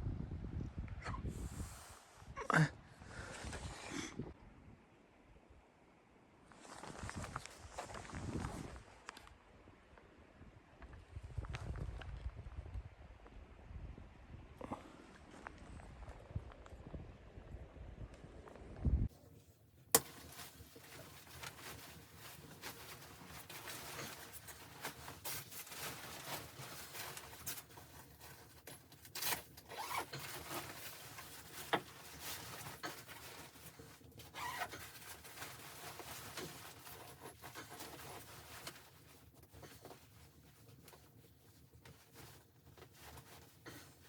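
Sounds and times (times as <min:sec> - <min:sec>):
faint rustling and scraping: 0:06.4 - 0:10.1, 0:19.1 - 0:44.0.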